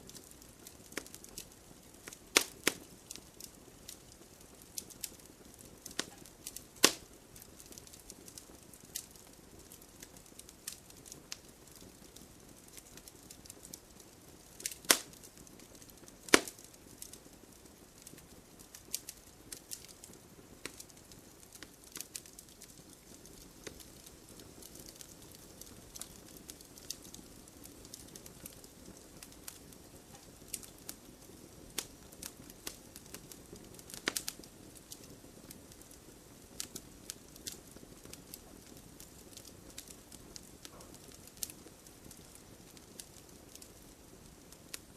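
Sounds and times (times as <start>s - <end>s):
campfire crackling and popping: 0.0s - 44.9s
sharp loud fire pops: 16.3s - 16.6s.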